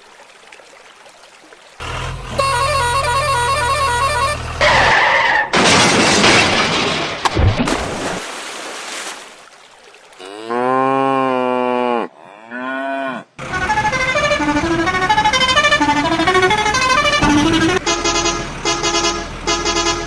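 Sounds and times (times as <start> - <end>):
rough crashing noise: 5.5 - 8.3
cow mooing: 10.2 - 13.4.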